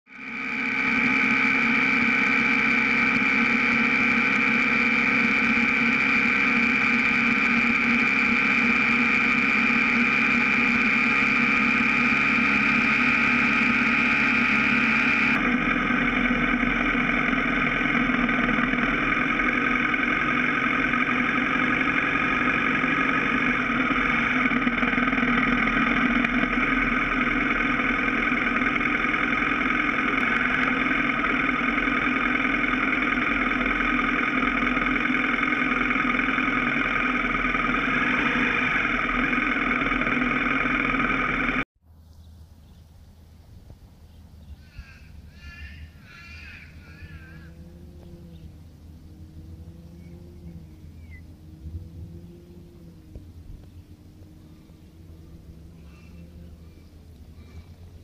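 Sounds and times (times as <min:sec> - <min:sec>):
motorcycle engine running: 0:00.1 - 0:41.7, 0:43.7 - 0:58.0
steady high whine: 0:00.1 - 0:41.7, 0:42.8 - 0:58.0.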